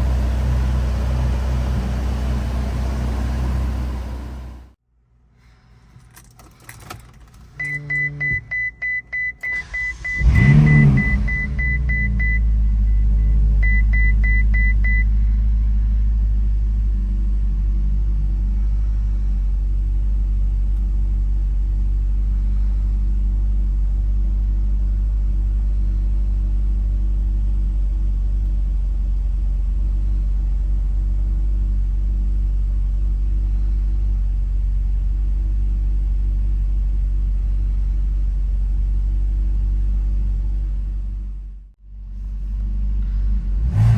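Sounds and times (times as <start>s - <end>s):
engine cranking and idling: 0.0s - 4.8s, 9.2s - 15.0s.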